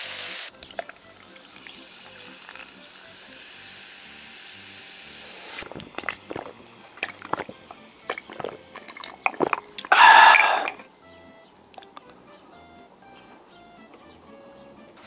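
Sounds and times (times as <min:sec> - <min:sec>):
steady hiss: 0:00.0 - 0:08.8
person chewing with wet smacks: 0:00.6 - 0:01.0, 0:05.6 - 0:10.4, 0:11.7 - 0:12.1.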